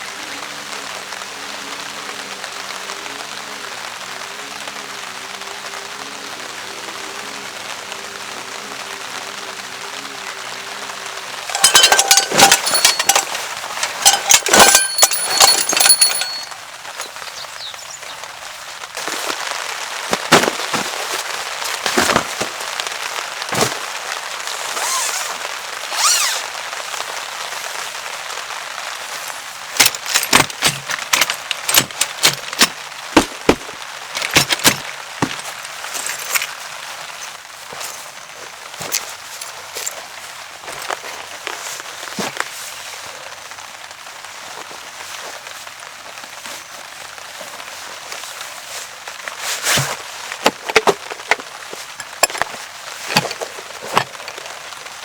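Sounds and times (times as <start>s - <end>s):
rain hiss: 0.0s - 11.6s, 16.5s - 55.0s
metallic clinks and knocks: 11.5s - 17.2s, 20.1s - 20.9s, 29.8s - 38.1s, 49.8s - 54.2s.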